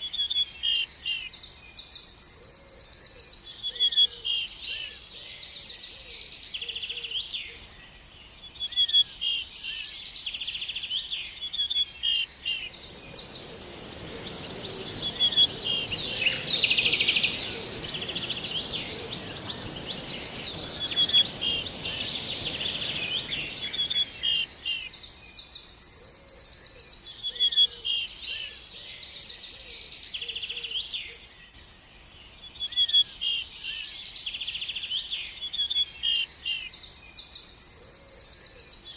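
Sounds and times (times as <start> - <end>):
birds singing and trilling: 12.2 - 25.4
steady rushing noise: 12.6 - 24.6.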